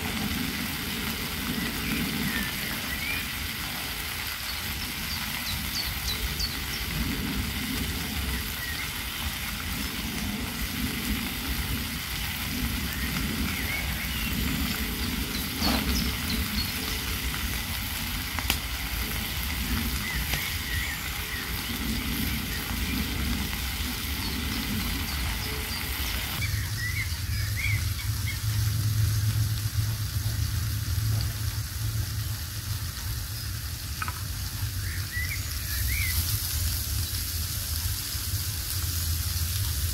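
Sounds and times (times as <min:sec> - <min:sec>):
food sizzling in a frying pan: 0:00.0 - 0:39.9
steady low hum: 0:09.6 - 0:37.8.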